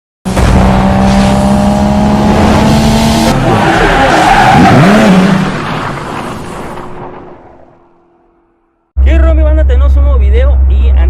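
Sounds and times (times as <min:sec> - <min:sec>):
car engine at high revs: 0:00.3 - 0:05.7
tyres skidding: 0:00.6 - 0:08.6.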